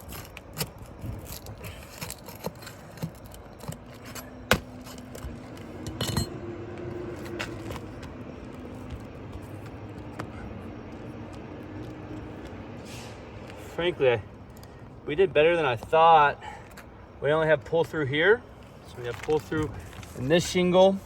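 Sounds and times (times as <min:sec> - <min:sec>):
clicks and scrapes on roof shingles: 0:00.0 - 0:05.7, 0:18.9 - 0:20.4.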